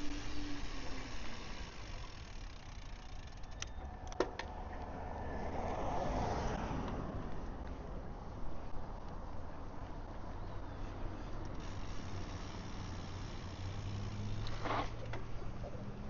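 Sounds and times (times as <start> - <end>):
car passing: 0.0 - 9.0
sharp clicks: 2.3 - 4.5.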